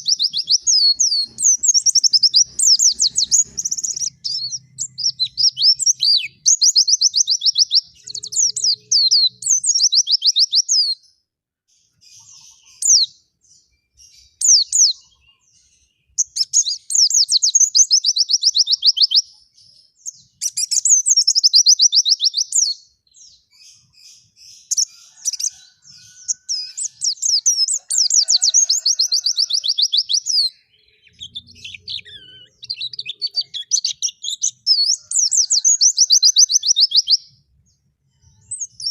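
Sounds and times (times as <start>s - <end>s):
songbird trilling: 0.0s - 11.0s, 20.2s - 37.3s.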